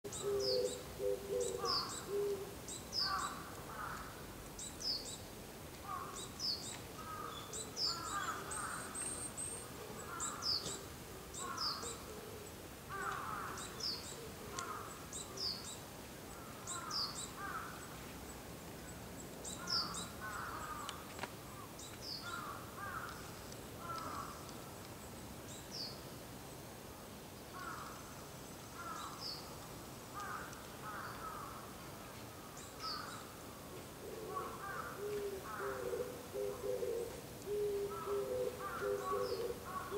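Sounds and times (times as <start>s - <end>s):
crows cawing: 3.0s - 4.2s, 5.8s - 6.2s, 7.0s - 9.0s, 11.4s - 11.9s, 12.9s - 13.7s, 14.5s - 15.0s, 16.4s - 17.8s, 19.6s - 23.2s, 23.8s - 24.5s, 27.6s - 28.0s, 28.8s - 29.2s, 30.2s - 31.7s, 34.1s - 39.9s.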